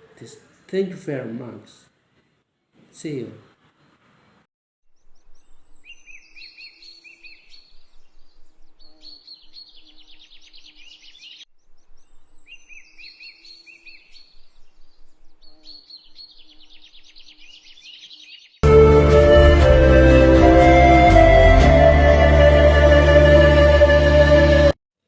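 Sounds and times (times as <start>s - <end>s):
songbird chirping and trilling: 4.9s - 18.7s.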